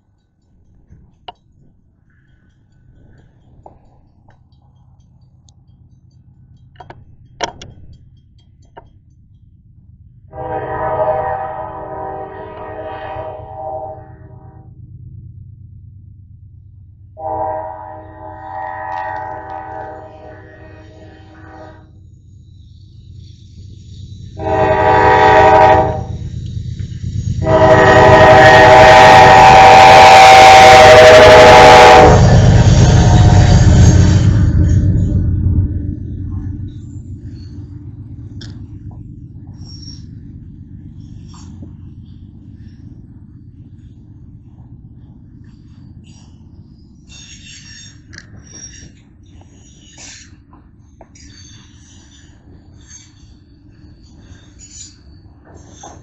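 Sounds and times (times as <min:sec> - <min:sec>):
train rumbling: 0:00.0 - 0:56.0
locomotive air horn: 0:10.3 - 0:14.7, 0:17.2 - 0:22.0, 0:24.4 - 0:26.2, 0:27.4 - 0:34.5
low rumble: 0:25.8 - 0:47.0.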